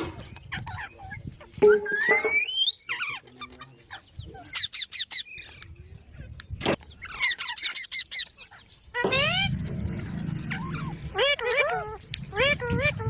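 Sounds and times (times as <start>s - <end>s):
parrot calls: 7.0s - 13.0s.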